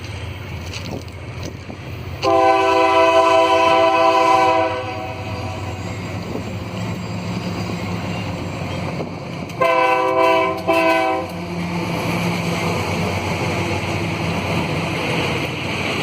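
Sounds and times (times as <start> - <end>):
rushing rail noise: 0.0 - 16.0
train horn blasts: 2.2 - 5.8, 9.5 - 11.4.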